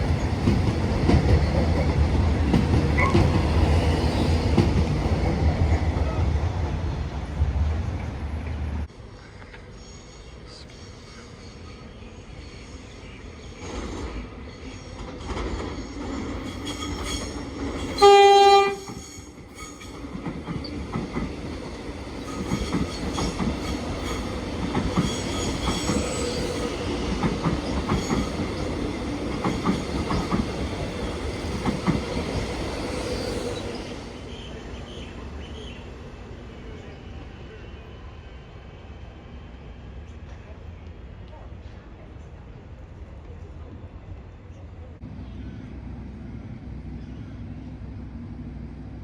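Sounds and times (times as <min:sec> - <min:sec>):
electric train passing: 0:00.0 - 0:41.2, 0:42.8 - 0:49.0
train horn blast: 0:18.0 - 0:19.0.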